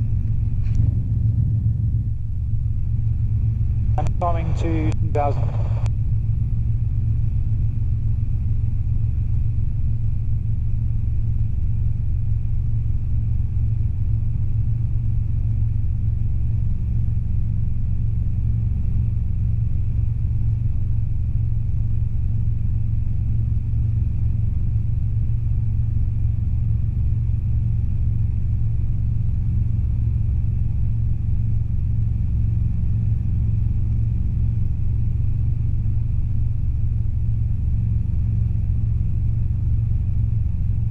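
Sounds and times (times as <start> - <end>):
faint high whine: 0.0 - 6.3
helicopter engine and rotor rumble: 0.0 - 40.9.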